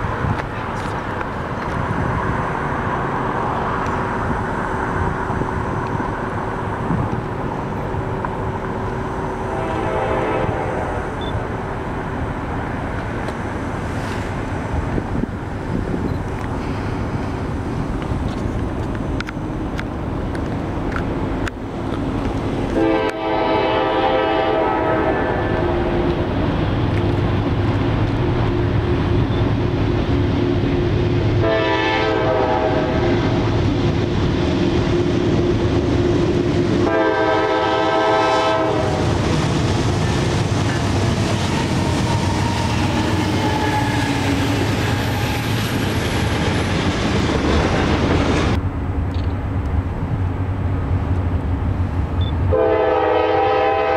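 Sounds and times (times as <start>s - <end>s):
passing train rumble: 0.0s - 53.9s
locomotive horn: 9.4s - 11.1s, 22.7s - 26.2s, 31.4s - 33.3s, 36.8s - 39.1s, 42.8s - 44.4s, 52.5s - 53.9s.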